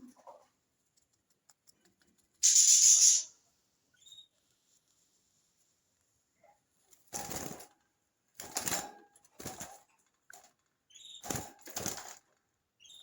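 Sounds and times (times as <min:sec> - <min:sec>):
budgerigar chirp: 0:02.4 - 0:03.3
wing flapping: 0:07.1 - 0:07.7, 0:11.2 - 0:12.2.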